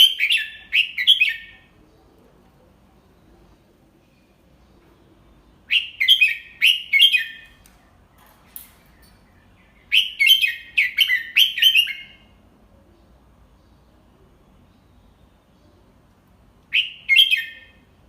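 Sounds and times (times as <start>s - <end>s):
bird whistling song: 0.0s - 1.6s, 5.6s - 12.3s, 16.7s - 17.9s.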